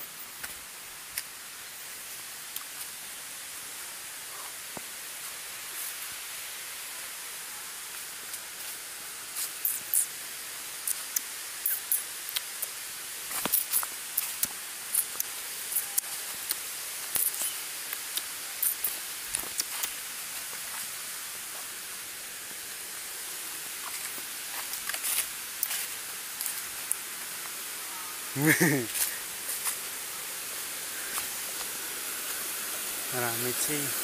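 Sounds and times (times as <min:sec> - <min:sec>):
footsteps through dry leaves: 0:23.7 - 0:26.7.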